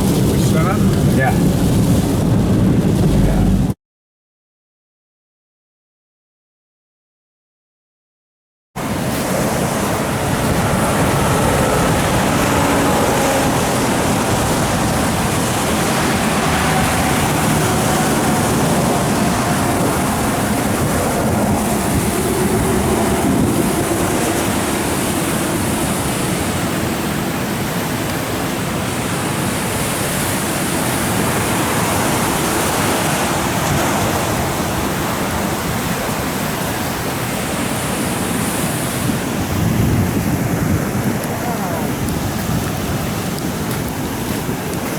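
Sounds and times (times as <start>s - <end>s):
floodwater rushing: 0.0s - 3.8s, 8.8s - 44.9s.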